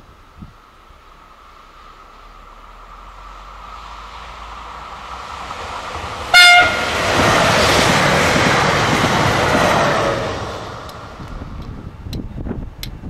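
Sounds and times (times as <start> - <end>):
train passing at speed: 0.0 - 13.0
short train horn blast: 6.3 - 7.0.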